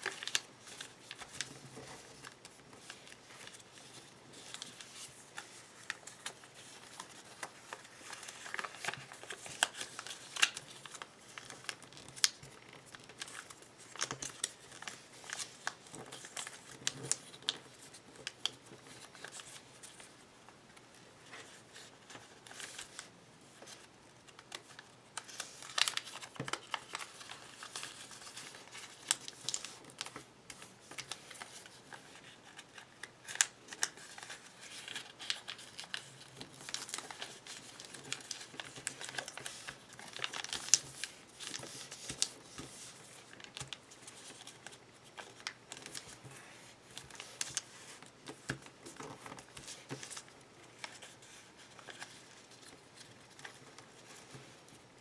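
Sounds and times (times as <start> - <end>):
paper crinkling and rustling: 0.0 - 55.0.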